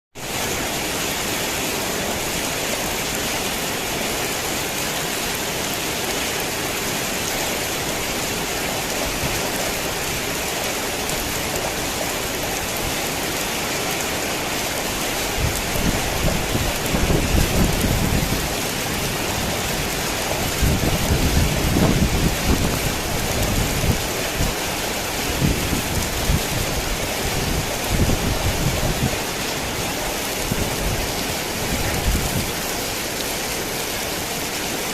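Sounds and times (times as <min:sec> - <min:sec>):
heavy rain hiss: 0:00.2 - 0:34.9.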